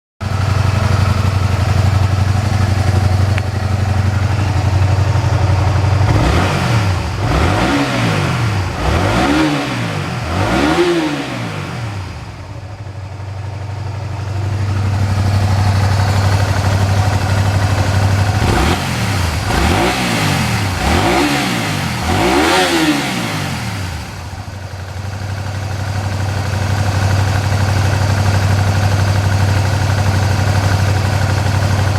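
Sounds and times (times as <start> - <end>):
motorcycle engine idling: 0.2 - 31.9
engine revving in throttle blips: 5.8 - 12.5, 17.4 - 24.4.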